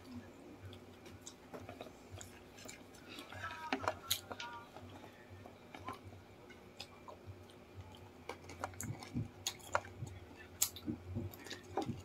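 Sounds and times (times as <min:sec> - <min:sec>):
people chewing chicken: 0:00.0 - 0:12.0.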